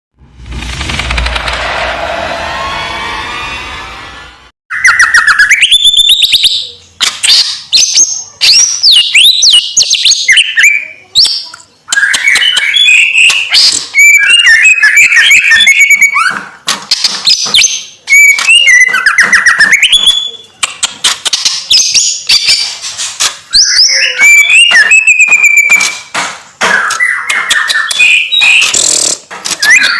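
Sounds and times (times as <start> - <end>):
songbird singing rapid phrases: 4.7 - 16.2, 23.5 - 26.0.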